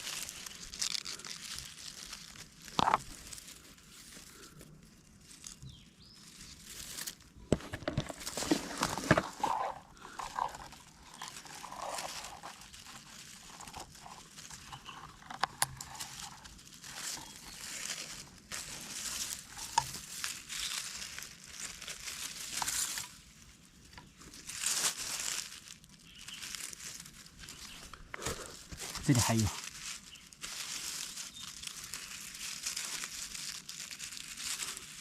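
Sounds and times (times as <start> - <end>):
rustling of dry forest litter: 0.0 - 35.0.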